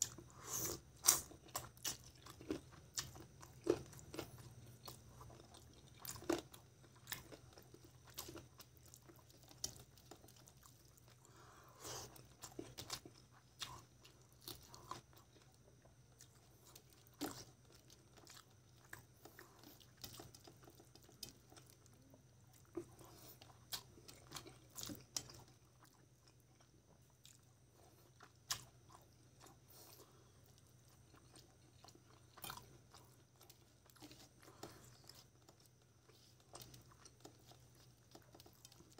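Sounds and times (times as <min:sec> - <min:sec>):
chewing and lip smacks: 0:12.0 - 0:38.9.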